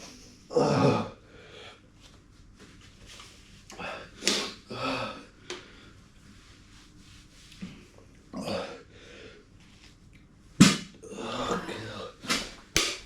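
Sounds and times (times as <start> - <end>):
man burping: 11.1 - 12.1.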